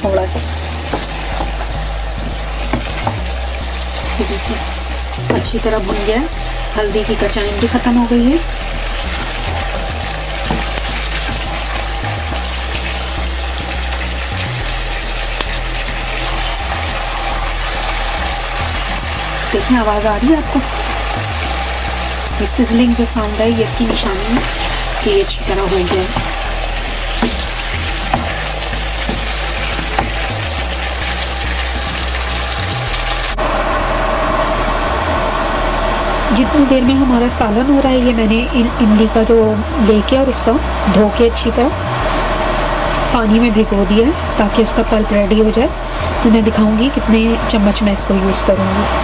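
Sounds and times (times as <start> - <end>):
vegetables sizzling in oil: 0.0 - 49.0
wooden spoon stirring: 16.0 - 32.6.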